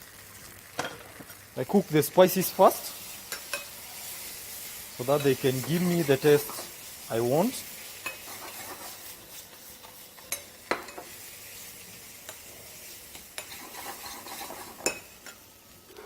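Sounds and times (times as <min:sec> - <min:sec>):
sauce sizzling in a saucepan: 0:00.0 - 0:16.0.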